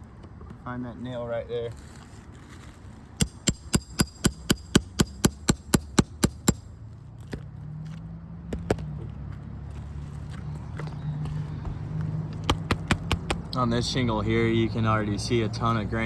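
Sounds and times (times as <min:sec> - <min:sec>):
hammer striking nail puller: 0:03.2 - 0:06.7.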